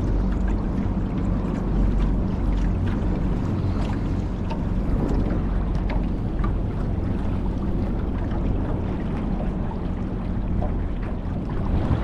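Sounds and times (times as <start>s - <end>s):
boat engine drone: 0.0s - 12.0s
water noise: 0.0s - 12.0s
wind on microphone: 3.0s - 12.0s.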